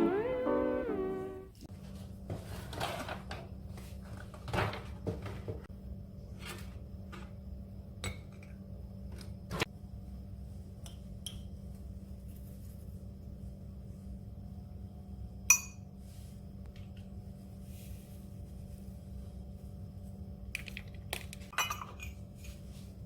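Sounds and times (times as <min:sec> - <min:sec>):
steady low hum: 0:05.7 - 0:23.0
dishes and utensils clinking: 0:21.5 - 0:22.2.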